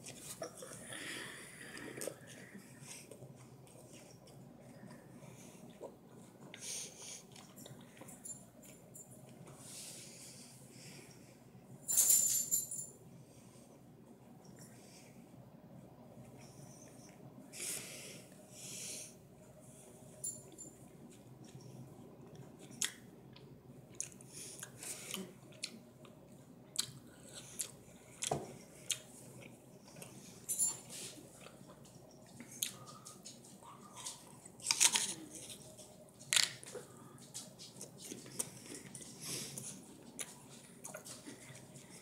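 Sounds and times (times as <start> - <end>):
person chewing pear: 22.2 - 30.3, 32.4 - 42.0.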